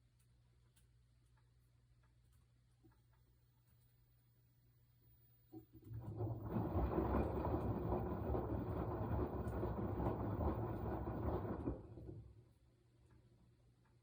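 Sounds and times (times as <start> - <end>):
washing machine motor hum: 5.0 - 14.0
laundry and water churning: 5.5 - 13.6.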